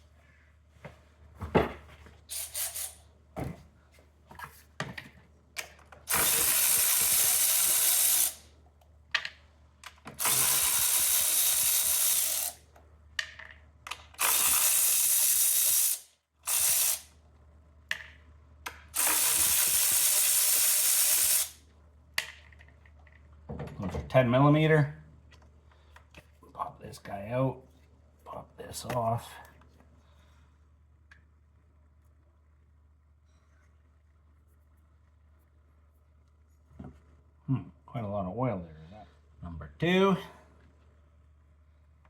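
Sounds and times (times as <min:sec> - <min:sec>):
tool clicks and clatter: 0:05.0 - 0:08.4, 0:09.1 - 0:12.6, 0:13.2 - 0:17.1, 0:17.9 - 0:21.5
power ratchet running: 0:06.1 - 0:08.5, 0:10.1 - 0:12.6, 0:14.2 - 0:17.1, 0:18.9 - 0:21.6.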